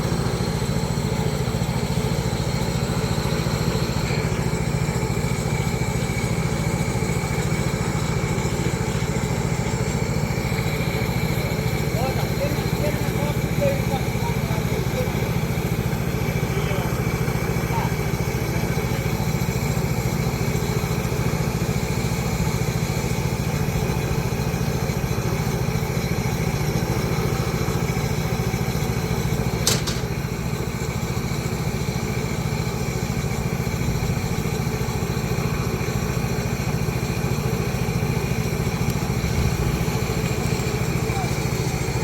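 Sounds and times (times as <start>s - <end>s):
engine droning: 0.0s - 42.0s
sharp click: 29.6s - 30.2s.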